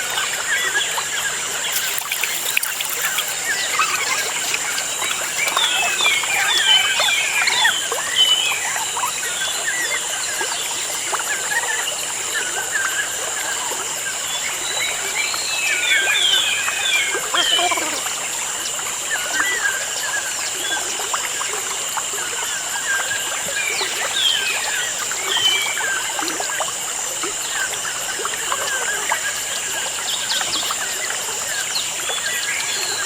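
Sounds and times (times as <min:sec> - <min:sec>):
birds chirping: 0:01.7 - 0:12.4, 0:22.8 - 0:33.0.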